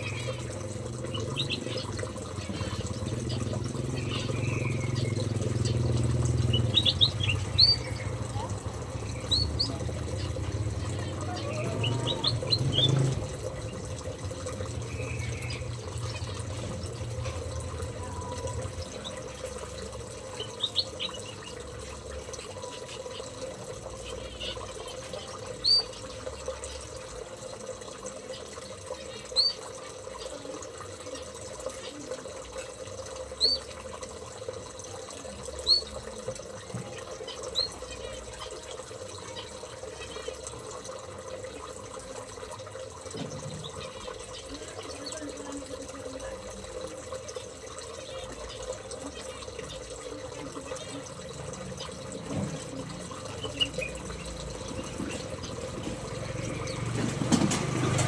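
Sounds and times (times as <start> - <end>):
bird giving high chirps: 1.1 - 13.2, 20.2 - 21.7, 24.1 - 26.1, 29.1 - 29.7, 53.3 - 54.9.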